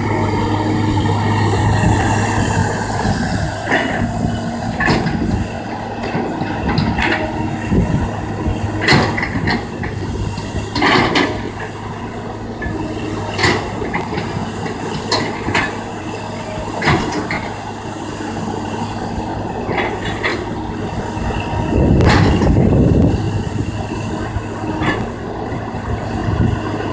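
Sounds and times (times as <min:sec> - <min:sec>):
excavator diesel engine running: 0:00.0 - 0:26.9
metallic clanks and scrapes: 0:08.8 - 0:11.6.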